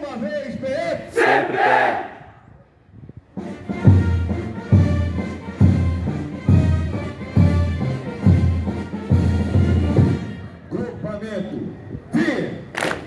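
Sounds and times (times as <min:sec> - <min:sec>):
brass band playing a march: 0:03.4 - 0:10.6.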